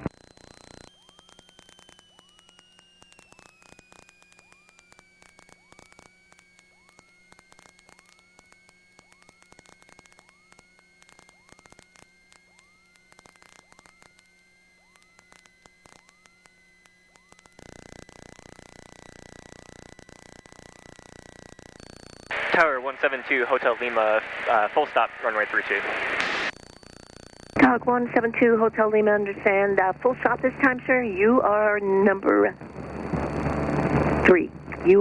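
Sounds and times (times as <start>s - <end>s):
crackling clicks: 0.0s - 35.0s
thin electrical whine: 0.0s - 35.0s
low hum: 27.6s - 35.0s.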